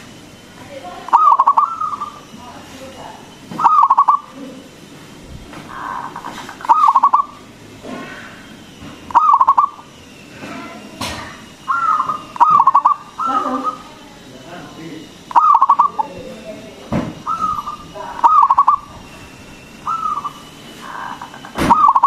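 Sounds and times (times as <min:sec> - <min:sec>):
dove cooing: 0:01.0 - 0:02.4, 0:03.5 - 0:04.4, 0:05.7 - 0:08.5, 0:09.1 - 0:14.3, 0:15.2 - 0:16.4, 0:17.2 - 0:22.0.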